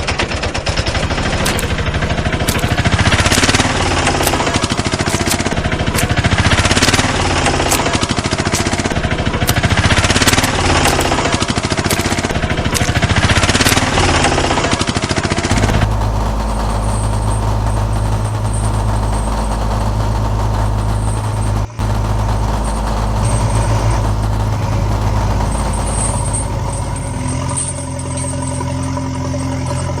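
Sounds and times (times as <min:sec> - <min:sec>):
heavy vehicle engine idling: 0:15.5 - 0:30.0.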